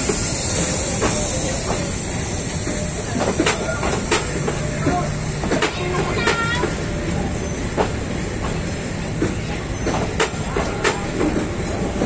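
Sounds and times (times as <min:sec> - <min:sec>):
wheels clacking over rail joints: 0:00.0 - 0:06.8
train wheels rumbling on rail: 0:00.0 - 0:12.0.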